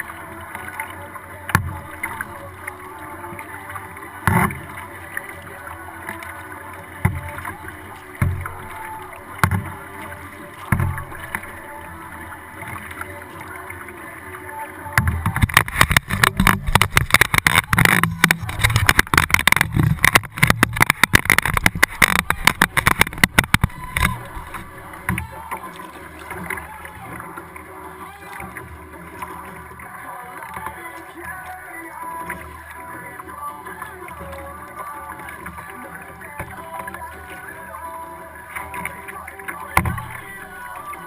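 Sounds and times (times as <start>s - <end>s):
paddle knocking against boat: 1.5s - 2.5s, 4.2s - 4.8s, 7.0s - 11.8s, 15.0s - 27.2s, 38.5s - 41.0s
dense crackling clatter: 15.3s - 24.8s.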